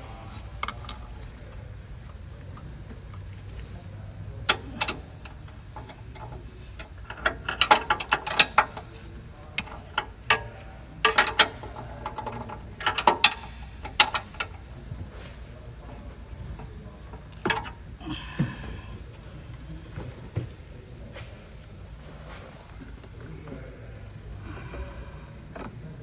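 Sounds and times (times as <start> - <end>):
hand tools clinking on metal: 2.1 - 18.4
ratchet clicks: 4.5 - 14.8.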